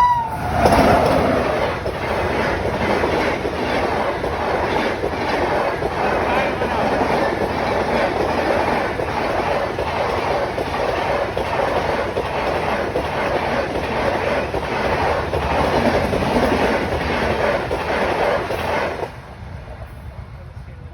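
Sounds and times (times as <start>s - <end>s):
train carriages rumbling: 0.0s - 20.9s
wheels clickety-clack over rail joints: 0.0s - 20.9s.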